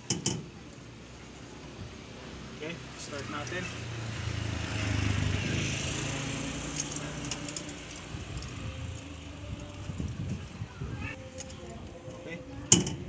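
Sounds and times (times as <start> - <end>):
petrol engine idling: 4.3 - 13.0.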